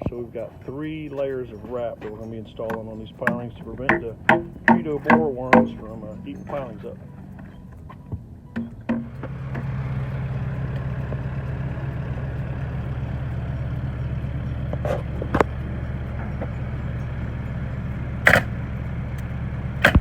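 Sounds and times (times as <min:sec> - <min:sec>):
engine running: 0:00.0 - 0:20.0
sharp knocks: 0:03.3 - 0:05.8, 0:18.3 - 0:18.5.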